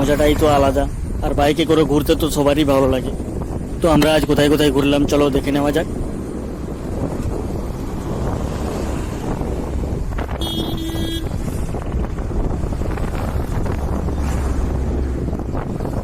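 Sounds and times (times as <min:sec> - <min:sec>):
motorcycle engine rumble: 0:00.0 - 0:16.0
wind buffeting microphone: 0:00.0 - 0:16.0.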